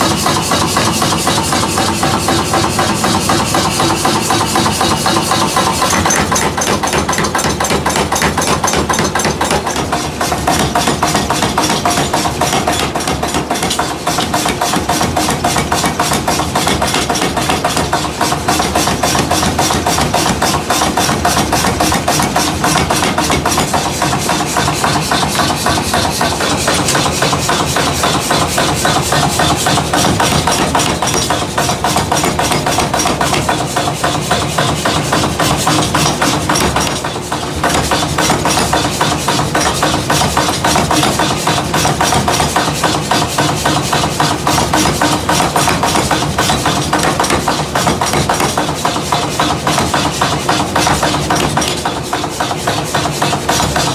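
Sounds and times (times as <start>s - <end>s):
metal being hammered rapidly: 0.0s - 53.9s.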